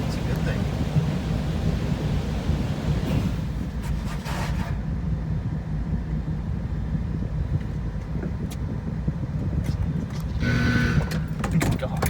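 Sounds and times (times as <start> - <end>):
car wash low rumble: 0.0 - 12.0
short tonal whine: 10.4 - 11.3.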